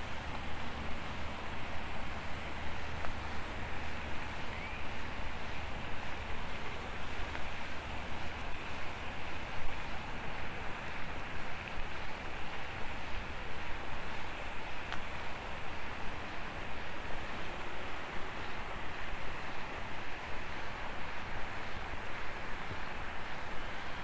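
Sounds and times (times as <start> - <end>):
rushing outdoor noise with low rumble: 0.0 - 24.0.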